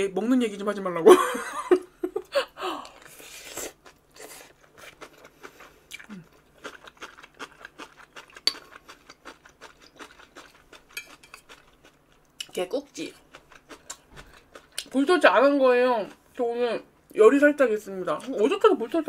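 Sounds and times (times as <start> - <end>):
person chewing and crunching food: 2.8 - 15.0.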